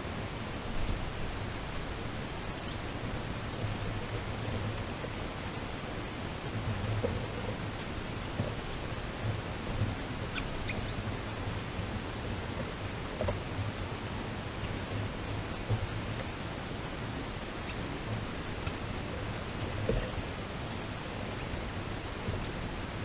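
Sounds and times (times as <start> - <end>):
steady hiss: 0.0 - 23.0
sweeping bird calls: 10.3 - 11.4, 17.0 - 17.9
high-pitched bird chirps: 10.7 - 11.1.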